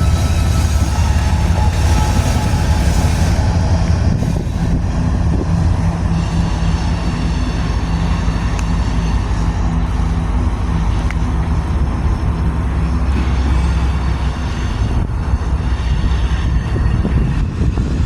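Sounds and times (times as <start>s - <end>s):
engine low rumble: 0.0s - 18.0s.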